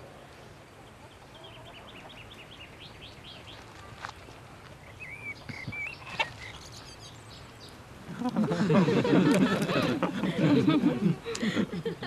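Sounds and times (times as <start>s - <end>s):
small birds chirping: 0.0s - 8.4s
warbling whistled bird notes: 4.8s - 7.6s.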